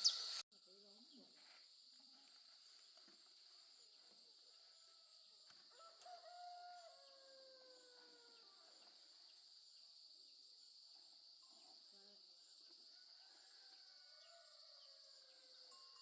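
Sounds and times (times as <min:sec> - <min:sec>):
insects chirring: 0:00.0 - 0:14.4
distant rooster crowing: 0:05.7 - 0:08.7, 0:13.0 - 0:15.7.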